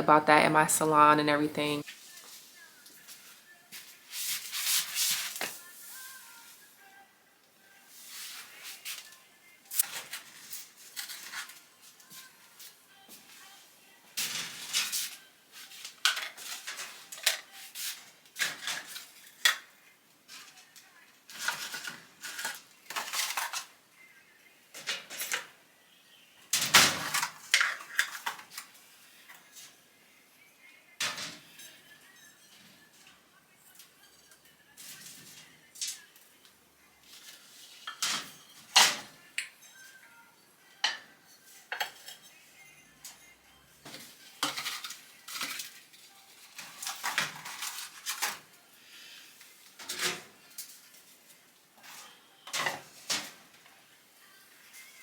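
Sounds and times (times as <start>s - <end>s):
objects clattering and scraping: 9.8s - 11.7s, 14.2s - 19.7s, 21.3s - 23.7s, 26.5s - 28.7s, 37.1s - 39.1s, 43.8s - 48.5s, 49.7s - 51.1s.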